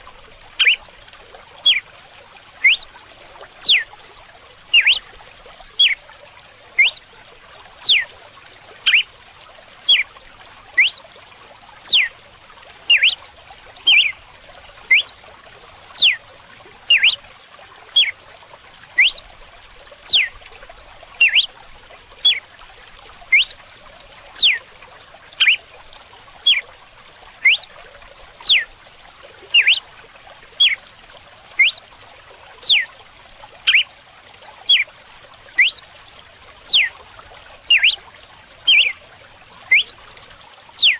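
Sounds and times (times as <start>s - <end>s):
water trickling: 0.0s - 40.9s
bird whip-like song: 2.6s - 2.9s, 19.0s - 19.2s, 31.6s - 31.8s, 35.6s - 35.8s, 39.7s - 40.0s.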